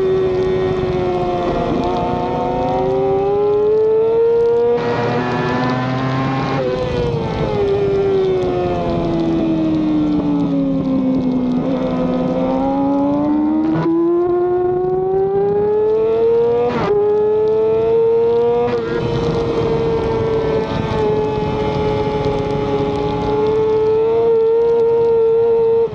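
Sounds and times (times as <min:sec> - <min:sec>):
gear change clicks: 0:00.0 - 0:25.9
racing motorcycle engine: 0:00.0 - 0:25.9
wind rush: 0:18.4 - 0:24.6.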